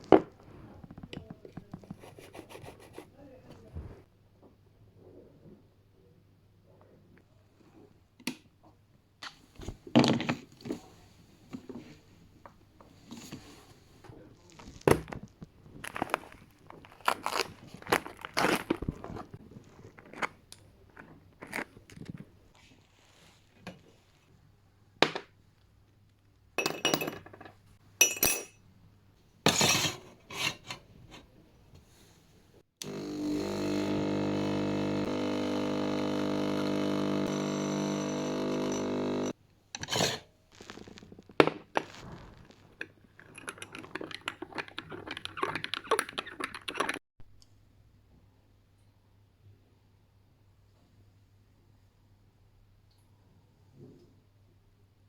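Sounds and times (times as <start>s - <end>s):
crackly rustling: 13.7s - 24.1s, 40.4s - 45.8s
clinks of glass or crockery: 28.0s - 28.6s
small appliance motor running: 32.8s - 39.4s.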